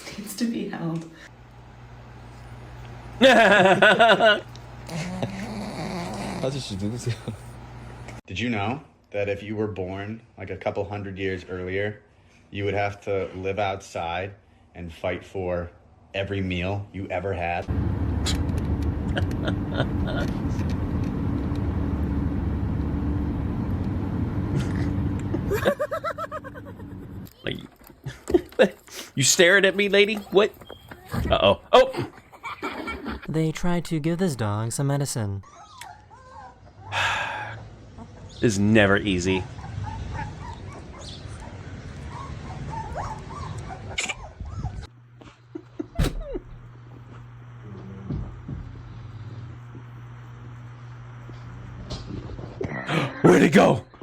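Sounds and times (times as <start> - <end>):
low rumble with hum: 17.6 - 27.4
dog whining and yelping: 35.4 - 37.0, 39.5 - 44.9.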